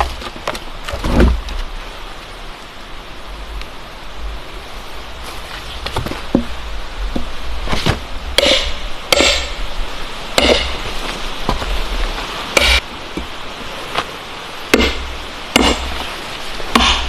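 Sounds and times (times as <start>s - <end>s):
steady hiss: 0.0s - 17.0s
sharp heavy knocks: 7.8s - 9.6s, 14.7s - 15.9s, 16.7s - 17.0s.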